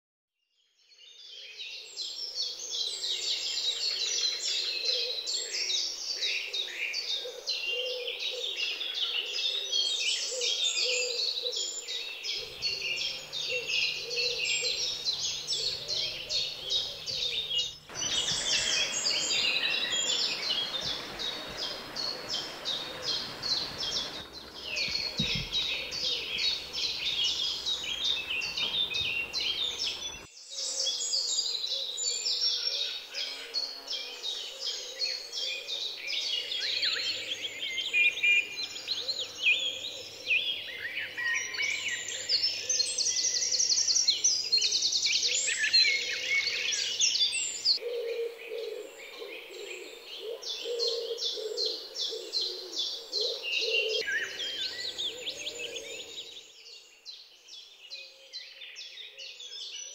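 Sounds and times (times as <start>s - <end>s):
small birds chirping and singing: 0.4s - 59.9s
lower bird call: 2.5s - 30.9s.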